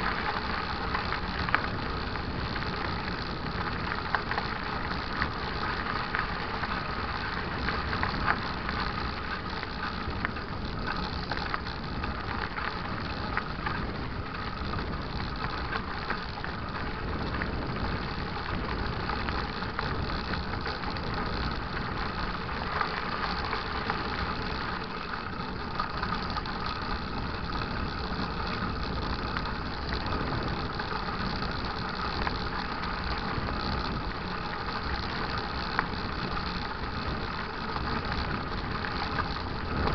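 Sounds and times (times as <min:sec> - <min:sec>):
bike rattles and clicks: 0:00.0 - 0:39.9
bike tyre rumble on dirt: 0:00.0 - 0:39.9
wind noise: 0:00.0 - 0:39.9.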